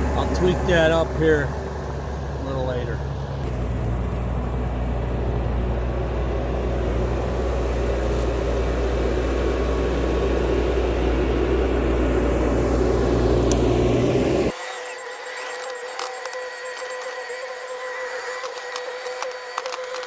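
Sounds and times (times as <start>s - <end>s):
heavy machine diesel engine running: 0.0s - 14.6s.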